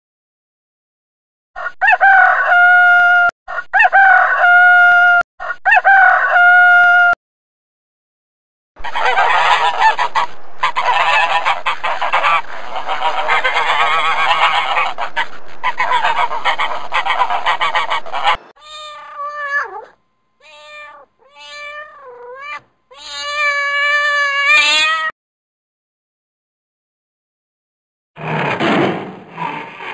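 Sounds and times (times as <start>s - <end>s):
swans and geese honking: 8.8s - 18.9s
kitten meowing: 18.6s - 25.1s.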